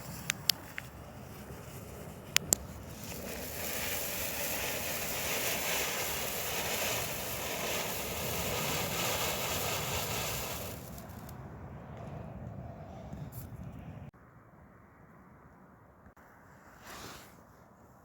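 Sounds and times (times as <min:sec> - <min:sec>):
firework fountain hissing: 0:00.0 - 0:11.4.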